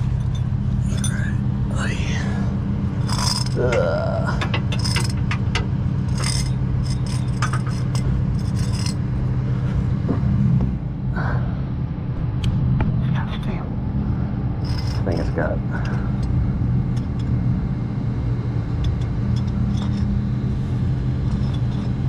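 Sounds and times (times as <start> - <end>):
metal chains clinking: 0.0 - 1.3, 3.0 - 3.8, 4.6 - 9.0, 14.6 - 15.2
engine idling hum: 0.0 - 22.0.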